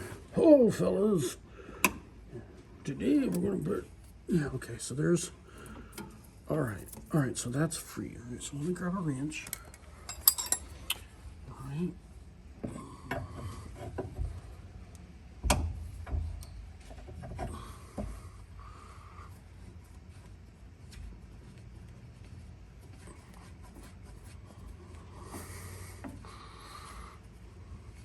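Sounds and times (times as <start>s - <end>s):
metal hand tools clinking: 9.4s - 10.8s.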